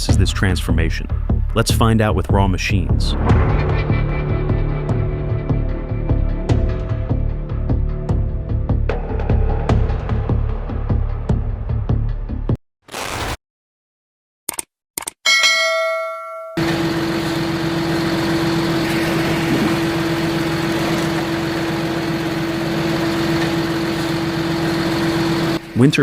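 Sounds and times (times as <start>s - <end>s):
machine drone: 3.1s - 11.3s, 16.6s - 26.0s
ringing chime: 15.3s - 16.6s.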